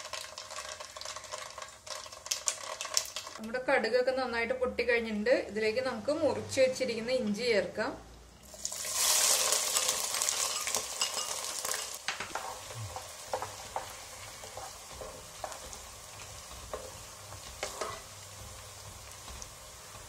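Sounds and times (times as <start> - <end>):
ginger sizzling in hot oil: 0.0 - 3.4, 8.4 - 20.0
wooden spatula scraping a pot: 12.2 - 20.0.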